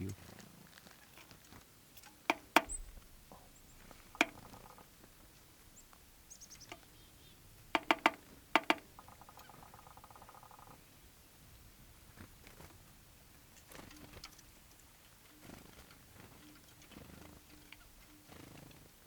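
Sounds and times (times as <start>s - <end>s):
sharp clicks or knocks: 2.0s - 4.8s, 7.8s - 9.1s
faint high bird chirps: 2.2s - 11.2s, 13.5s - 18.8s
buzzy bird call: 5.7s - 10.9s.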